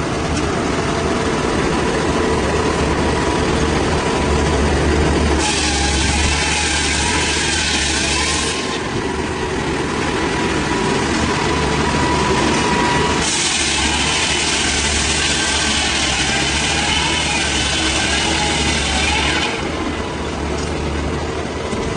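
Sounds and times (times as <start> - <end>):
heavy engine running: 0.0 - 21.9
saw cutting wood: 5.4 - 8.8, 12.5 - 19.7.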